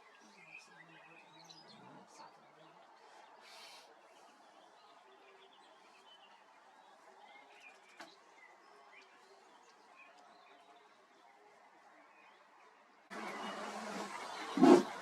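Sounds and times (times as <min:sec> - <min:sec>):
distant birdsong chirps: 0:11.7 - 0:15.0.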